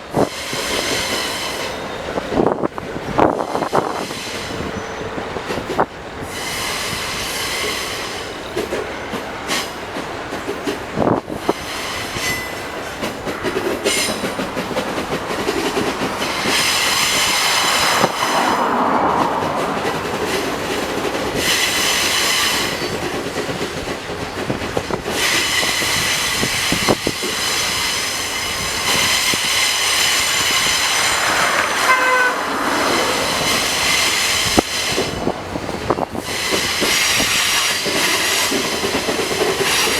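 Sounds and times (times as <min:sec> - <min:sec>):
train wheels rumbling and clattering: 0:00.0 - 0:39.9
wheel flanges squealing: 0:11.5 - 0:23.4, 0:24.2 - 0:38.8.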